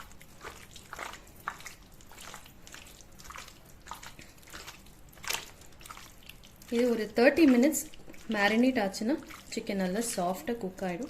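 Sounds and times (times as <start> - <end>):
wet squelching of marinade: 0.0 - 11.0.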